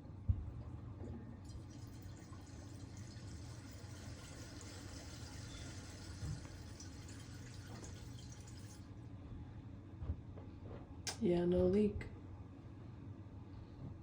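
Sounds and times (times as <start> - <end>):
toilet tank refilling: 1.4 - 9.0.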